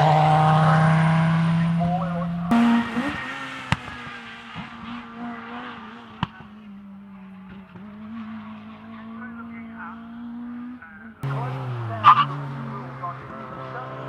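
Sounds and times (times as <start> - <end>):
rally car engine at speed: 0.0 - 14.0.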